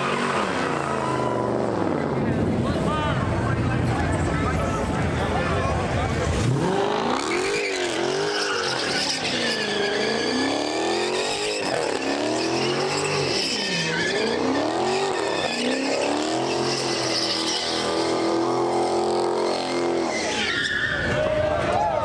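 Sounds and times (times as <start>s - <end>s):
car engine revving hard: 6.2s - 20.4s.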